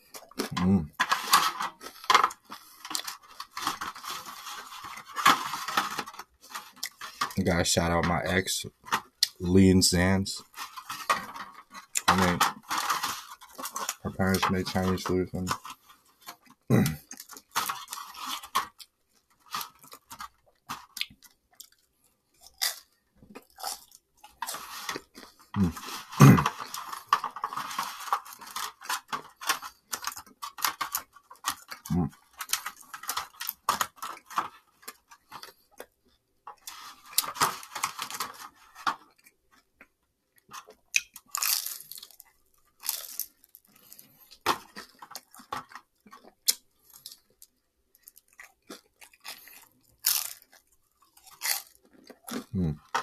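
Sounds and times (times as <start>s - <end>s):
chewing and mouth noises: 39.0s - 53.0s.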